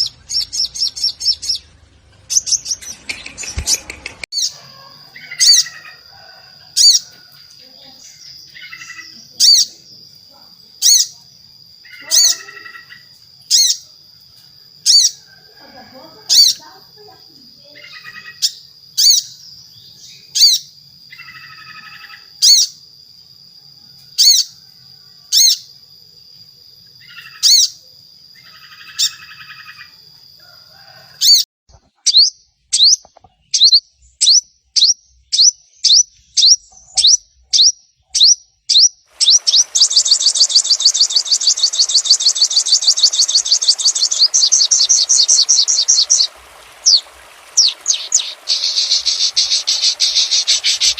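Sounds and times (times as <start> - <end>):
sunbird chipping calls: 0.0 - 6.0, 36.4 - 50.9
hiss: 39.2 - 50.9
steady high whine: 39.2 - 50.9.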